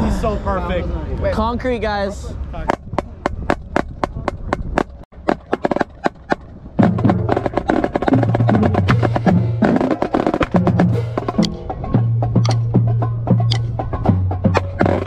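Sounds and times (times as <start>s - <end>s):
steady clicking beat: 2.7s - 15.0s
marching snare drum: 4.3s - 15.0s.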